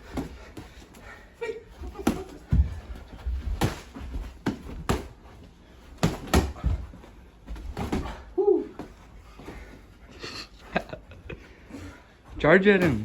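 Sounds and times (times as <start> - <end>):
thuds of punches and bodies: 1.8 - 5.2, 5.9 - 8.9.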